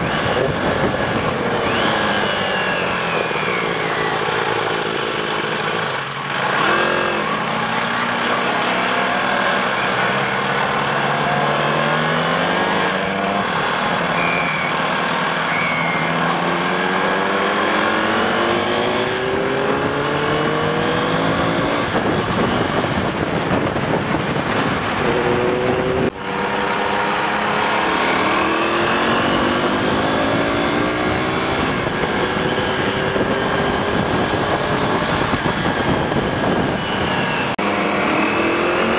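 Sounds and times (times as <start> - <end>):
wind rush: 0.0 - 1.8, 18.9 - 26.8, 27.9 - 37.6
motorcycle engine accelerating: 0.0 - 38.9.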